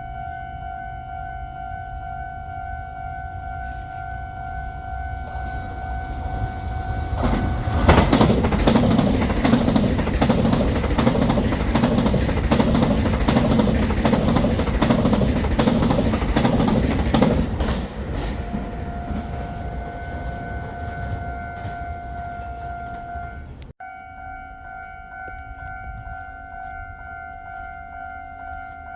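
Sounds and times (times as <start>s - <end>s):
train wheels clicking over rail joints: 5.2s - 23.7s.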